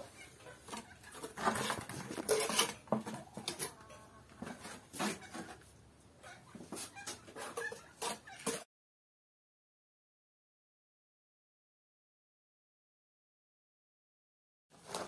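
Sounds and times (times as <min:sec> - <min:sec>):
trowel scraping and clinking: 0:01.2 - 0:04.0.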